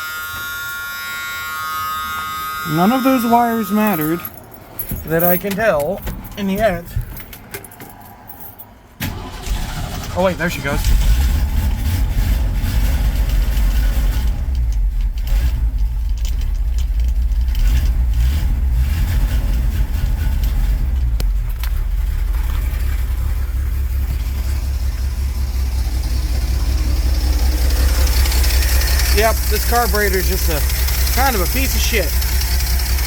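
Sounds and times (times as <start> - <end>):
engine idling: 9.0 - 33.0.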